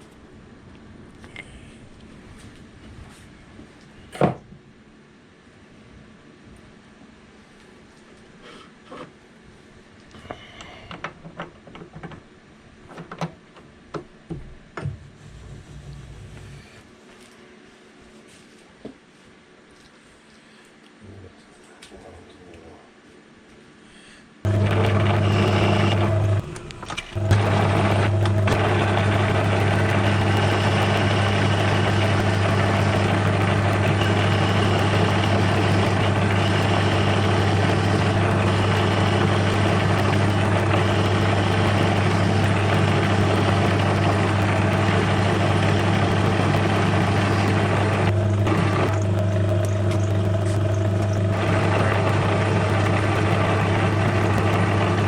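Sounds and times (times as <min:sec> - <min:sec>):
lathe motor humming: 0:24.5 - 0:55.0.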